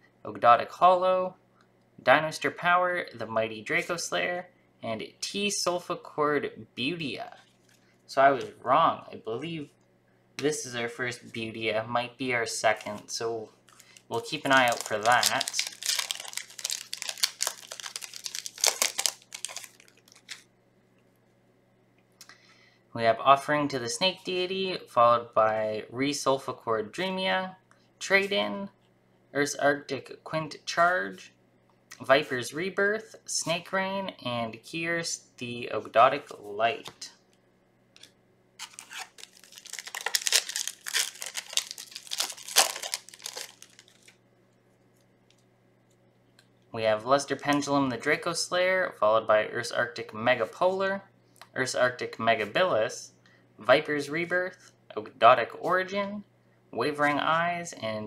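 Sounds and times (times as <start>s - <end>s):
foil wrapper crinkling: 13.7s - 20.5s, 38.6s - 44.2s.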